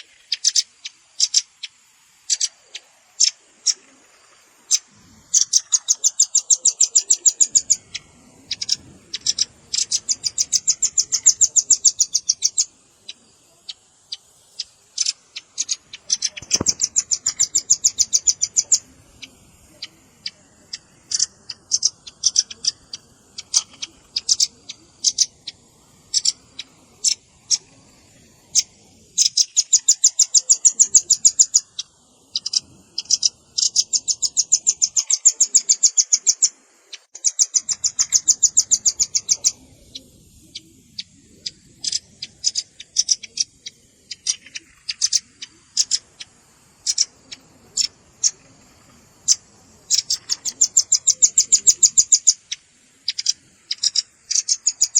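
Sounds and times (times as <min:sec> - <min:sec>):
bird rattling trills: 0:00.0 - 0:54.9
bird chip notes: 0:04.7 - 0:27.7.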